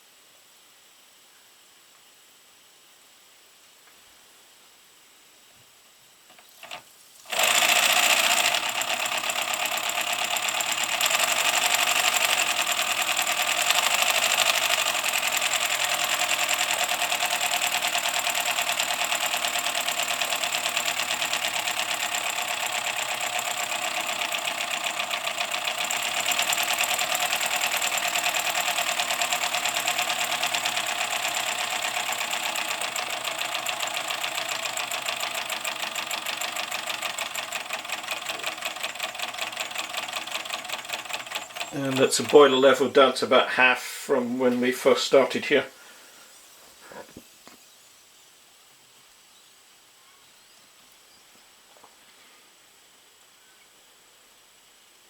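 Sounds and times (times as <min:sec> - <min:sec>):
steam locomotive chuffing: 0:07.3 - 0:42.8.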